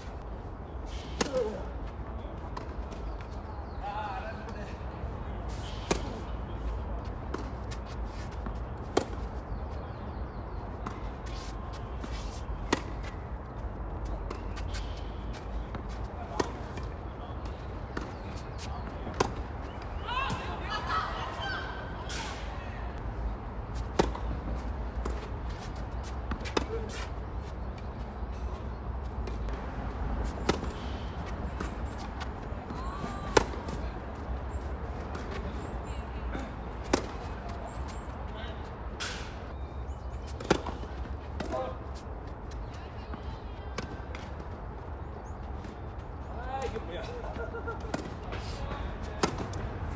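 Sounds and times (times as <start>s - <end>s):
tennis ball hit by racket: 23.8s - 24.3s, 33.0s - 33.8s, 36.8s - 37.3s, 40.4s - 41.6s.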